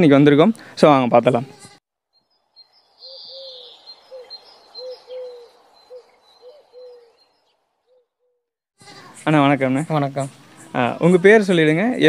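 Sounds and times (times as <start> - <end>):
faint high chirping: 2.2 - 9.4
bird cooing: 3.0 - 8.4.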